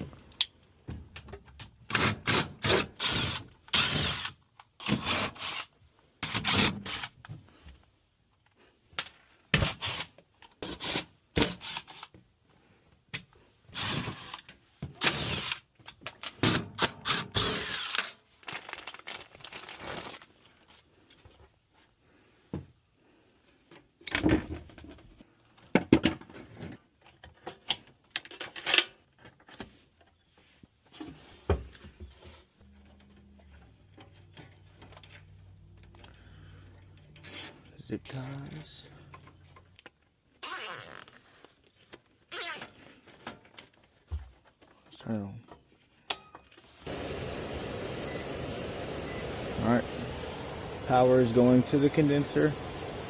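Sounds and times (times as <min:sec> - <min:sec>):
power drill bursts: 0:01.9 - 0:07.1, 0:10.8 - 0:12.1, 0:13.8 - 0:14.4, 0:15.0 - 0:15.6, 0:16.4 - 0:18.1, 0:46.9 - 0:53.0.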